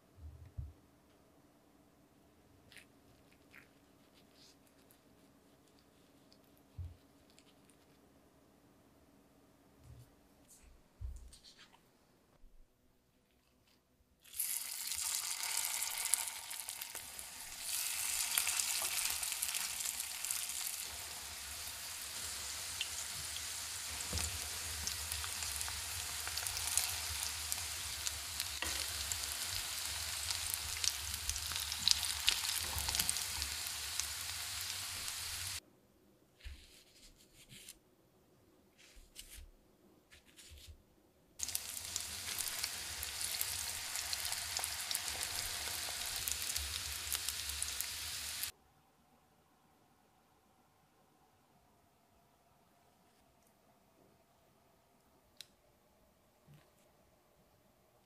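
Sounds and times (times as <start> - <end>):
patties sizzling in oil: 14.2 - 35.6, 41.4 - 48.5.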